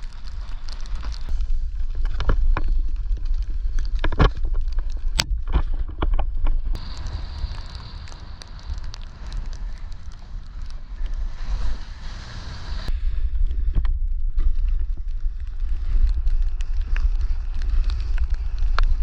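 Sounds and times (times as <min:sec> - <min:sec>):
wind buffeting microphone: 0:00.0 - 0:19.0
snowboard hissing on snow: 0:06.8 - 0:13.1.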